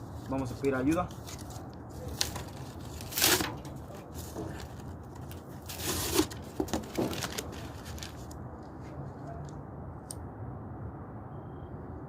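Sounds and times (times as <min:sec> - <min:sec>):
rustling and crunching firewood: 0:00.0 - 0:09.0.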